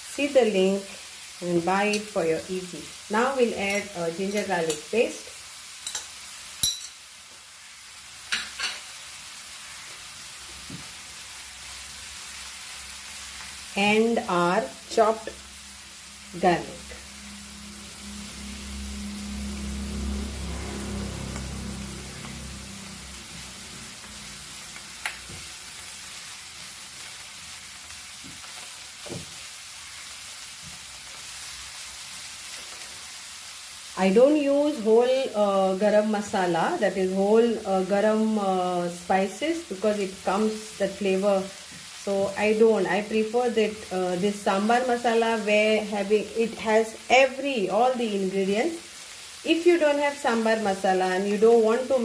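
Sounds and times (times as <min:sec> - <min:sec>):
onions sizzling in oil: 0:00.0 - 0:52.0
sharp ringing clink: 0:06.6 - 0:07.0.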